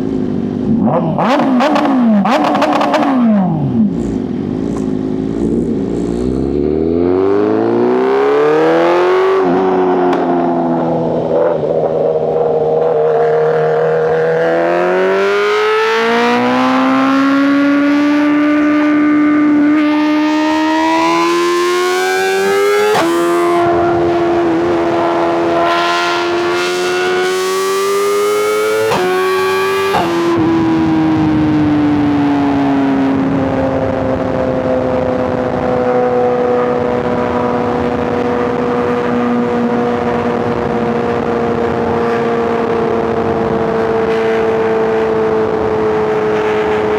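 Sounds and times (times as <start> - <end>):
motorcycle engine accelerating: 0.0 - 46.9
gear upshifts: 0.8 - 8.7.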